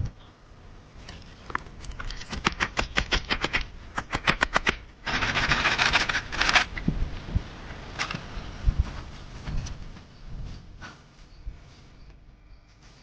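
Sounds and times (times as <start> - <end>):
rustling or scraping: 5.1 - 13.0.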